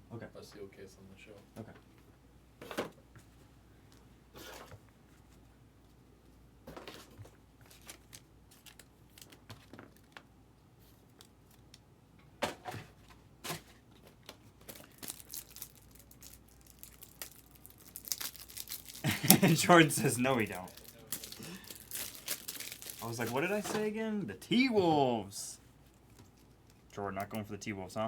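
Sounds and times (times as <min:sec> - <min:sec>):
wrappers tearing and crinkling: 0:07.7 - 0:09.4, 0:14.7 - 0:23.9.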